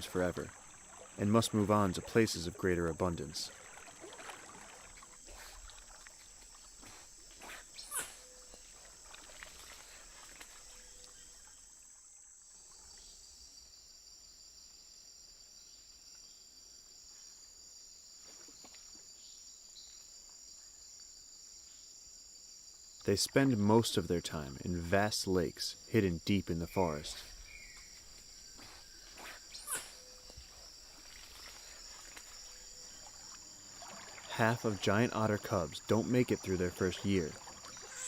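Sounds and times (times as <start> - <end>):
insects high-pitched chorus: 17.1 - 38.0.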